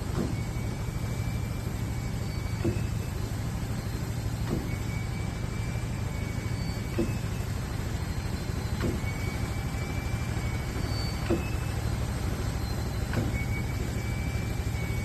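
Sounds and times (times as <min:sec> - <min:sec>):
pump rumbling: 0:00.0 - 0:15.0
squeaking knock: 0:02.4 - 0:03.0, 0:04.4 - 0:04.9, 0:06.6 - 0:07.4, 0:10.8 - 0:11.8.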